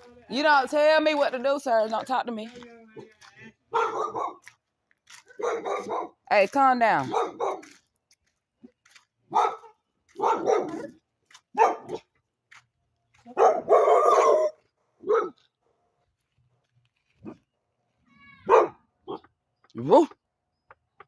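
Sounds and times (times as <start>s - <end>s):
dogs barking: 3.7s - 4.6s, 5.2s - 6.2s, 7.0s - 7.8s, 9.3s - 12.1s, 13.3s - 15.4s, 18.4s - 19.3s.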